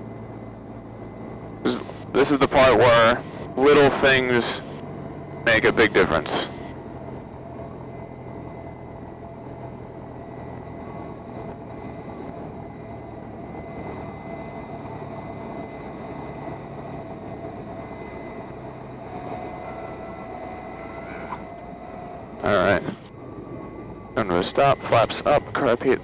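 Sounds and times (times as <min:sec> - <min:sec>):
aircraft engine and airflow drone: 0:00.0 - 0:26.0.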